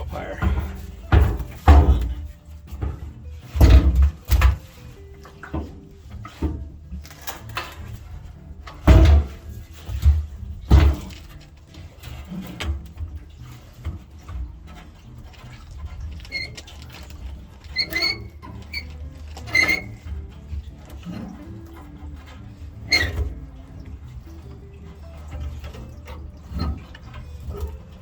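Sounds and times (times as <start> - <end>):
loud clunks: 0.0 - 4.8, 8.7 - 11.4
parts knocking and scraping: 0.0 - 28.0
short high squeaks: 17.7 - 20.3.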